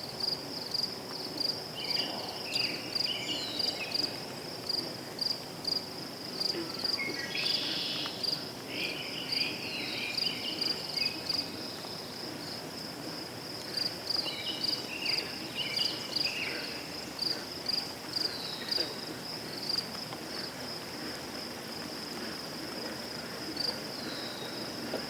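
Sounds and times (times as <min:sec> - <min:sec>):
crickets chirping: 0:00.0 - 0:25.0
birds twittering: 0:01.8 - 0:04.2, 0:06.8 - 0:12.2, 0:14.2 - 0:20.4, 0:23.9 - 0:24.8.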